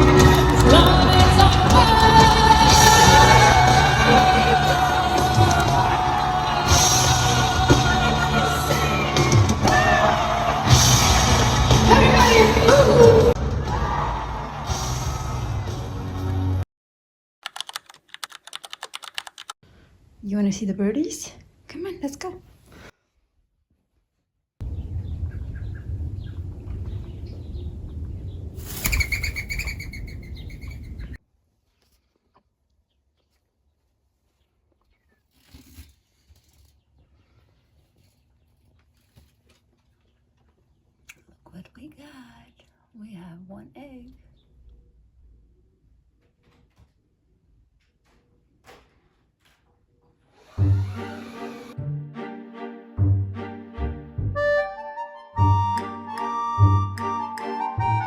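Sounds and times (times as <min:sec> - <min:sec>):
live rock music with singing: 0:00.0 - 0:15.9
crowd yelling and whooping: 0:00.0 - 0:16.4
small birds chirping: 0:24.7 - 0:31.2
loud harsh bird call: 0:28.8 - 0:31.2.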